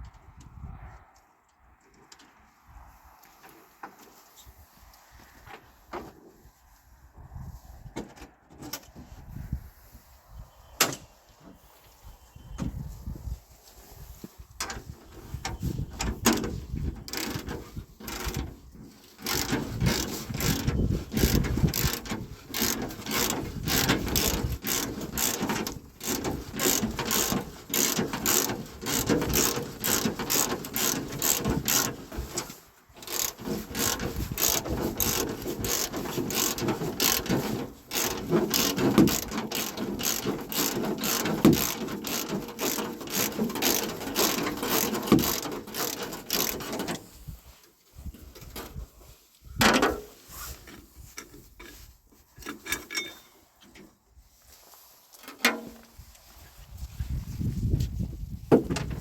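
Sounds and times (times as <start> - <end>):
mechanical ratchet clicking: 18.1 - 18.5, 19.2 - 32.4, 33.0 - 46.9.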